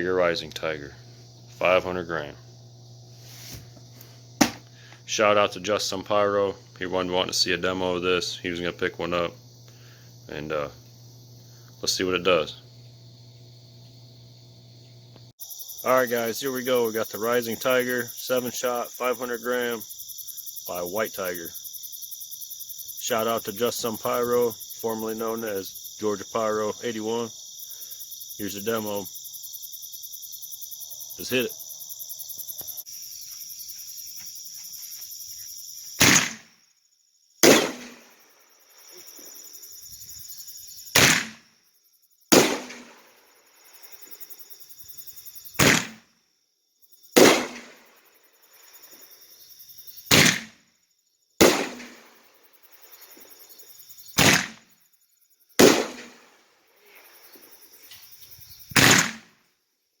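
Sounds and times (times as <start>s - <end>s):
crickets chirping: 0.0s - 60.0s
firework shell bursting: 3.1s - 4.8s, 36.0s - 36.5s, 37.4s - 38.2s, 40.9s - 41.5s, 42.3s - 43.2s, 45.6s - 46.1s, 54.2s - 54.7s, 58.8s - 59.3s
firework launch bangs: 4.4s - 4.8s, 36.0s - 36.5s, 37.4s - 38.2s, 40.9s - 41.4s, 42.3s - 43.1s, 45.6s - 46.1s, 47.2s - 47.9s, 50.1s - 50.6s, 51.4s - 52.2s, 54.2s - 54.7s, 55.6s - 56.3s, 58.7s - 59.3s.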